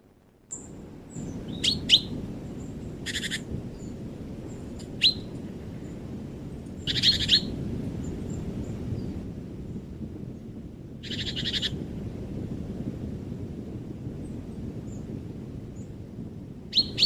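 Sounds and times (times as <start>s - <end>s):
low background rumble: 0.0s - 17.0s
songbirds chattering: 0.5s - 6.0s, 6.8s - 7.5s, 11.0s - 11.7s.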